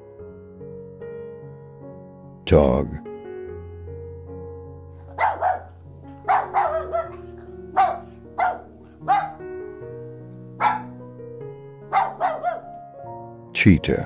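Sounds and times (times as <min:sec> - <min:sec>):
background music: 0:00.0 - 0:14.0
dog barking: 0:05.1 - 0:09.5, 0:10.6 - 0:11.0, 0:11.9 - 0:12.8.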